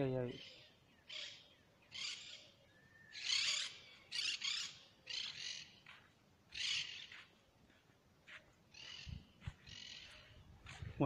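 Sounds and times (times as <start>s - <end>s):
birds calling scratchy high calls: 0.3s - 5.9s, 6.5s - 7.3s, 8.7s - 10.4s.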